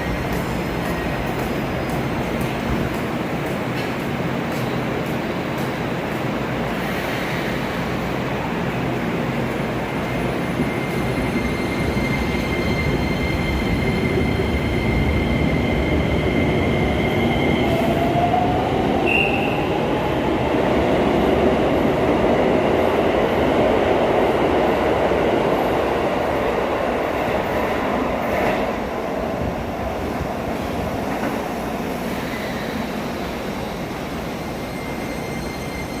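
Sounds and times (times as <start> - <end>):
train wheels on rail: 0.0 - 36.0
thin high squeal: 34.7 - 36.0.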